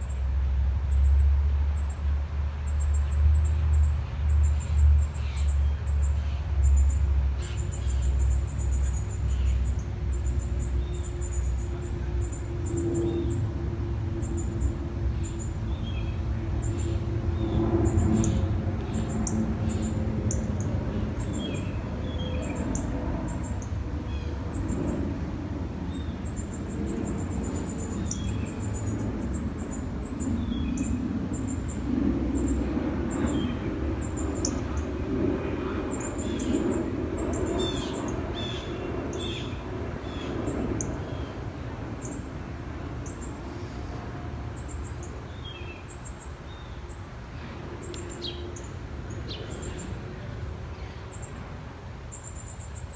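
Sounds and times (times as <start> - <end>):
small birds chirping: 2.7 - 25.2, 25.8 - 42.3, 47.8 - 50.0
steady low rumble: 8.0 - 38.4.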